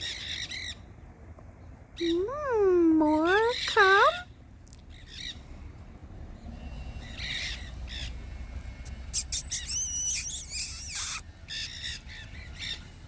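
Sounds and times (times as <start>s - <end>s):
parakeets squawking: 8.9s - 12.8s.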